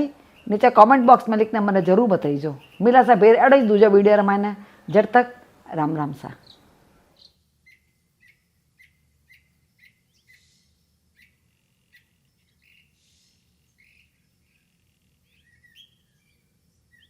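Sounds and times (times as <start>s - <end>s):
faint bird chirping: 0.0s - 17.0s.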